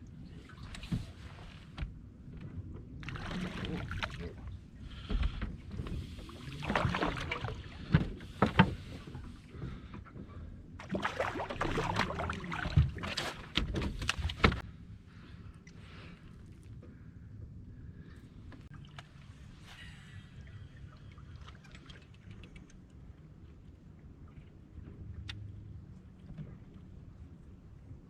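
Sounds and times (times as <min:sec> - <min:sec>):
water sloshing around boat: 0:00.0 - 0:28.0
knocks against boat: 0:07.8 - 0:09.8, 0:12.6 - 0:14.6.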